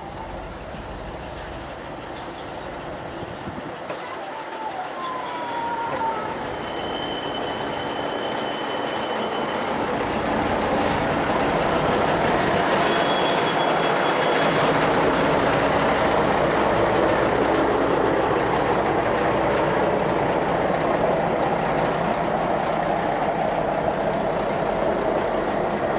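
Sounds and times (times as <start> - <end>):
high wheel squeal: 0.0 - 10.0, 10.9 - 14.6
train cars rumbling on rails: 0.0 - 25.9.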